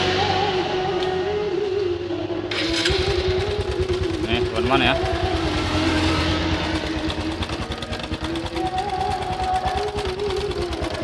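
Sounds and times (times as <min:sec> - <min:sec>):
motorcycle engine idling with clatter: 0:02.5 - 0:11.0.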